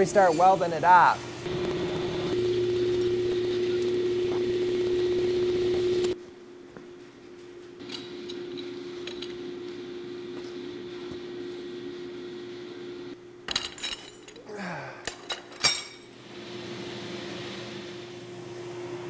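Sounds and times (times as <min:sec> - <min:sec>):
fan hum: 0:00.0 - 0:14.6.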